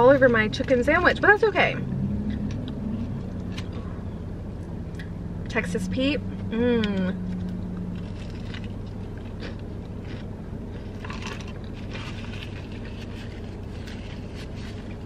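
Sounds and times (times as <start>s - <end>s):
steady low hum: 0.0s - 15.0s
crunching chewing mouth sounds: 7.3s - 12.5s.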